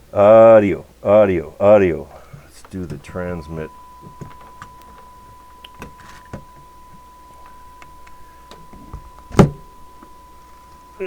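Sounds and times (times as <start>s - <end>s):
steady audio test tone: 0.0s - 11.0s.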